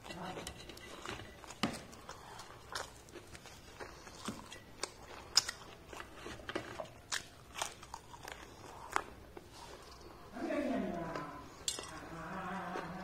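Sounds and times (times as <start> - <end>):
chewing crisp fried food: 0.0 - 10.3.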